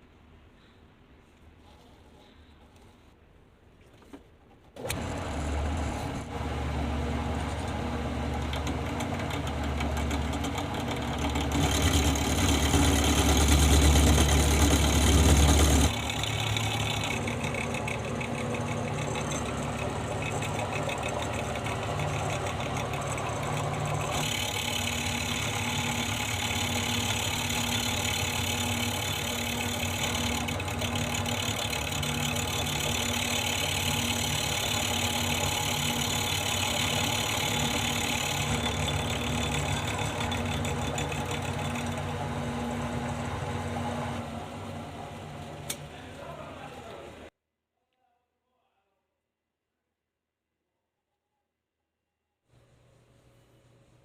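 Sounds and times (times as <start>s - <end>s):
electric motor machine humming: 4.8s - 46.1s.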